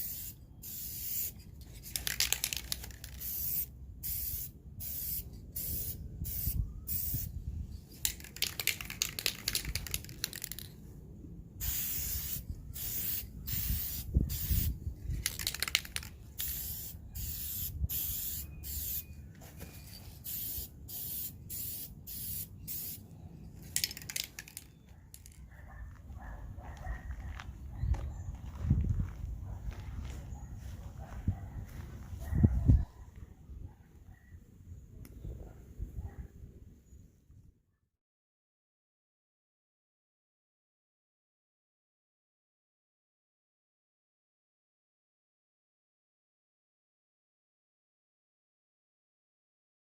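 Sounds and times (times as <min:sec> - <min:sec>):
aerosol spray can hissing: 0:00.0 - 0:07.3, 0:11.6 - 0:14.7, 0:15.3 - 0:19.0, 0:20.1 - 0:23.0.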